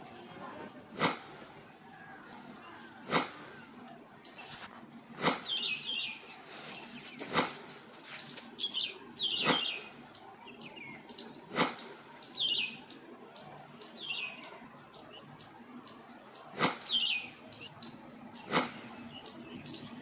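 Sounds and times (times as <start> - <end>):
high bird chirps: 5.2 - 13.0, 16.4 - 20.0.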